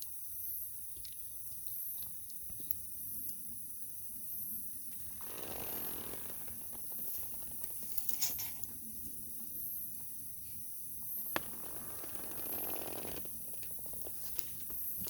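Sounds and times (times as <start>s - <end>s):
campfire crackling: 4.7s - 15.0s
fire popping: 4.8s - 8.8s, 11.0s - 15.0s
soft rushing noise: 5.0s - 7.7s.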